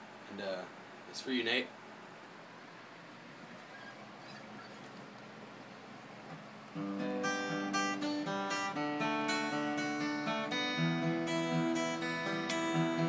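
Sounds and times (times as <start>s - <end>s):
acoustic guitar chords: 6.7s - 13.0s.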